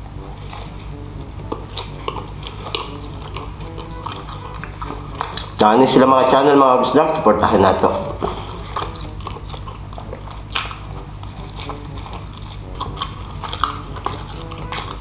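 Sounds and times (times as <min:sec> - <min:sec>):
person biting and chewing: 0:00.0 - 0:05.7, 0:07.8 - 0:15.0
low steady hum: 0:00.0 - 0:15.0
wet mouth clicks and smacks: 0:01.4 - 0:05.6.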